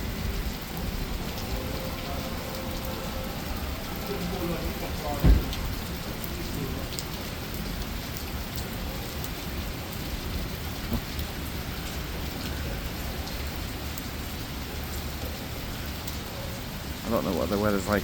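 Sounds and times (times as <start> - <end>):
low thunder rumble: 0.0 - 7.8
heavy rain on hard surfaces: 0.0 - 18.0.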